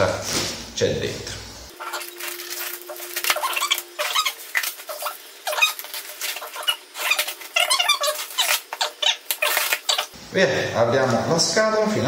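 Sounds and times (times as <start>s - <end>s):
cardboard and plastic rustling: 1.8s - 10.1s
packing tape ripping: 1.8s - 10.1s.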